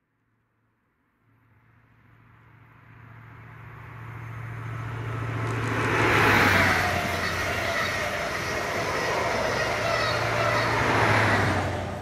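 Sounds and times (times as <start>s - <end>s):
diesel train engine passing: 2.2s - 12.0s
train wheels rushing on rail: 4.2s - 12.0s.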